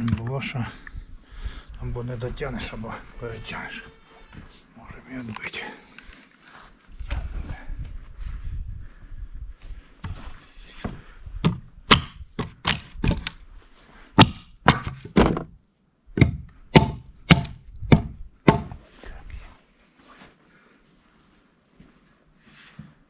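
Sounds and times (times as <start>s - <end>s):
sharp knocks on wood: 11.4s - 13.3s, 14.2s - 15.5s, 16.2s - 18.8s.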